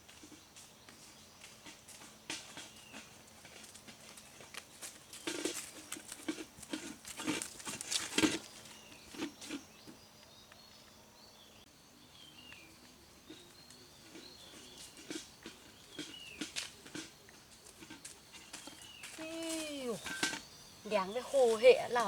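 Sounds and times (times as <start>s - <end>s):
faint high bird chirps: 18.3s - 22.0s.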